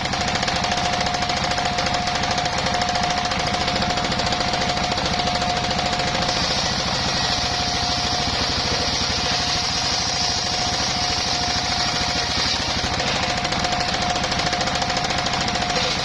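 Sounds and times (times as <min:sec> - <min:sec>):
saw blade cutting wood: 0:00.0 - 0:16.0
sawmill engine pulsing: 0:00.0 - 0:16.0.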